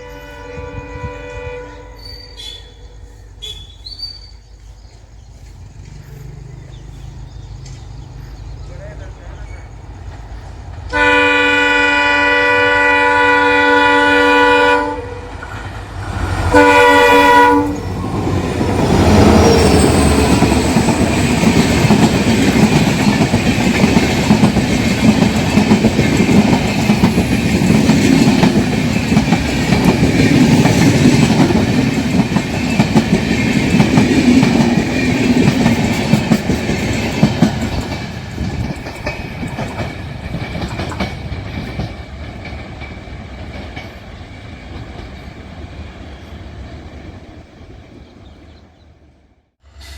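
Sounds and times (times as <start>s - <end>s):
locomotive horn blasts: 0.0s - 3.8s, 10.9s - 15.4s, 16.5s - 18.0s
train passing rumble: 0.0s - 49.9s
wheels clacking over rail joints: 4.6s - 11.2s, 17.7s - 46.2s.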